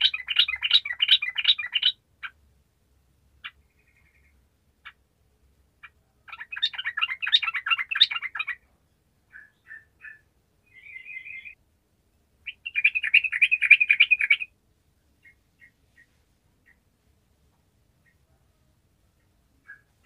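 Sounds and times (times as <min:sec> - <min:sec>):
bulbul singing: 0:00.0 - 0:02.4, 0:05.8 - 0:08.7, 0:09.3 - 0:11.6, 0:12.4 - 0:14.5.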